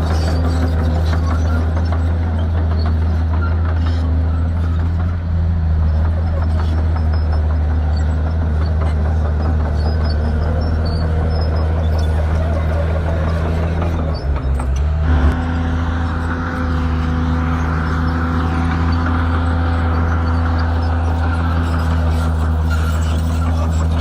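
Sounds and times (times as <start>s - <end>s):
bulldozer diesel engine running: 0.0s - 24.0s.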